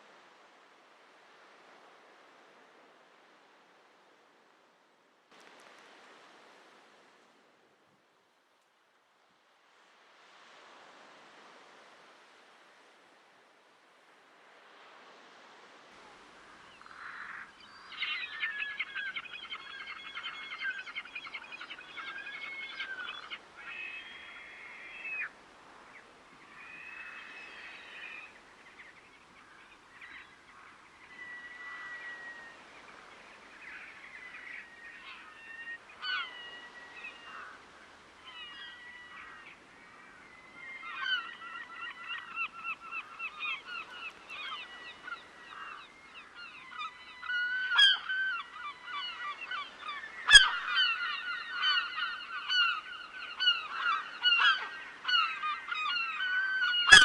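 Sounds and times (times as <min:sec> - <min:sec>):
bird calls and whistles: 0:46.7 - 0:57.0
geese honking: 0:56.7 - 0:57.0.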